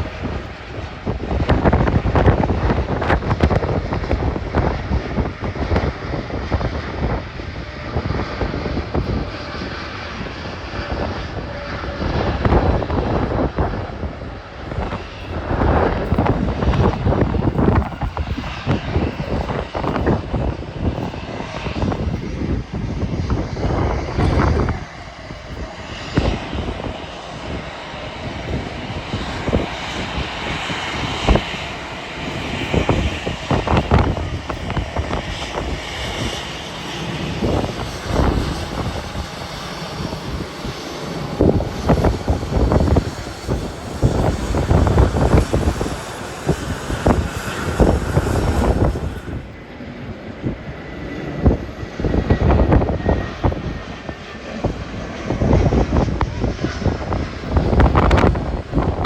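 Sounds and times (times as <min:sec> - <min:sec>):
jet engines rushing: 0:00.0 - 0:59.0
wind buffeting microphone: 0:00.0 - 0:59.0.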